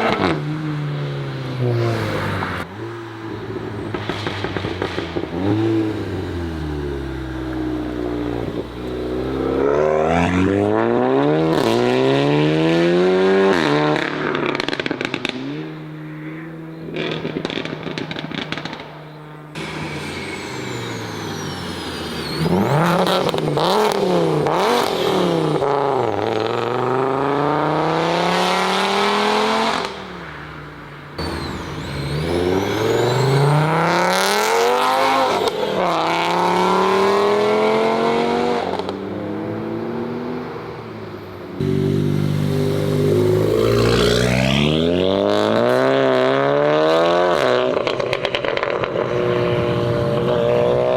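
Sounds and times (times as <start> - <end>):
cars accelerating hard: 0.0 - 50.9.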